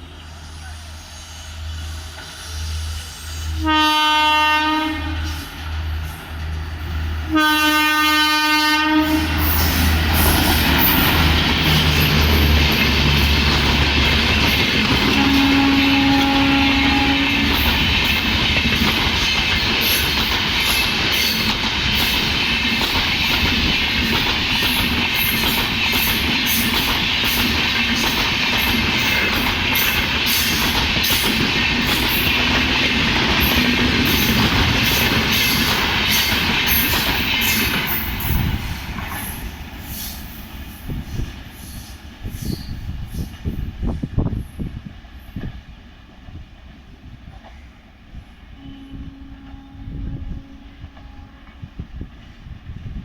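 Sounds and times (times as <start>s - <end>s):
train passing with loud rush: 0.0s - 53.0s
locomotive horn blast: 3.2s - 5.6s, 7.3s - 9.9s, 15.0s - 17.8s, 48.5s - 51.7s
train wheel clatter: 9.2s - 47.7s.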